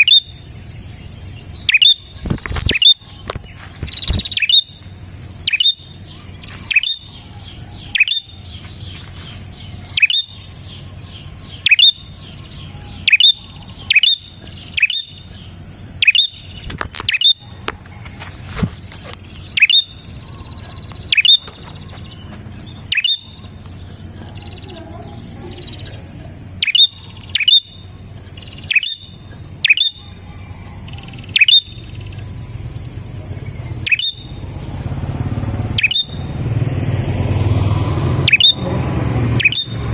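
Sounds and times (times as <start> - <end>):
bird chirping sharp notes: 0.0 - 18.4, 19.2 - 30.2, 30.8 - 32.6, 33.4 - 34.8, 35.6 - 36.5, 38.0 - 39.9.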